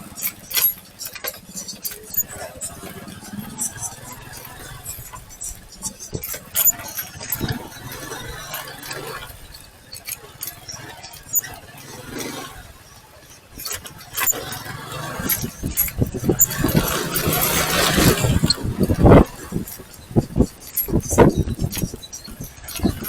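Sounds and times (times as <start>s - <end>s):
clicks and knocks: 0.0s - 9.2s.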